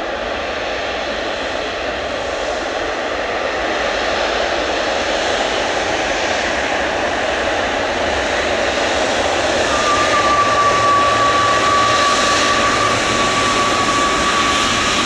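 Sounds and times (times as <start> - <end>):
jet engines running: 8.4 - 15.0.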